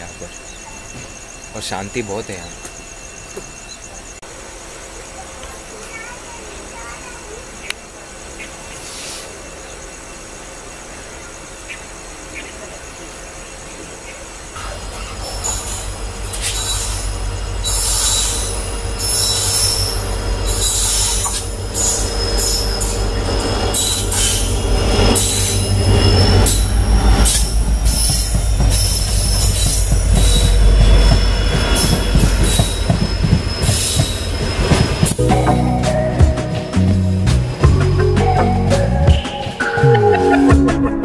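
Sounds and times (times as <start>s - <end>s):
locomotive engine rumble: 13.6s - 41.0s
wheels screeching: 14.6s - 41.0s.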